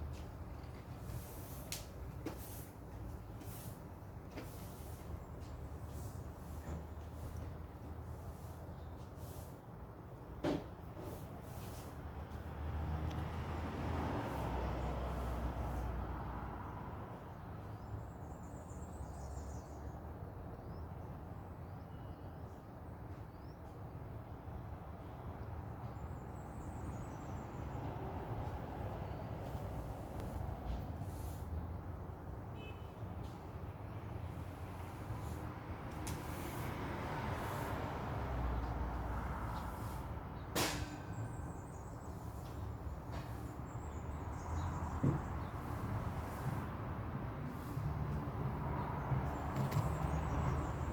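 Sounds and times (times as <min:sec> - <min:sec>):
small birds chirping: 0:41.1 - 0:46.7.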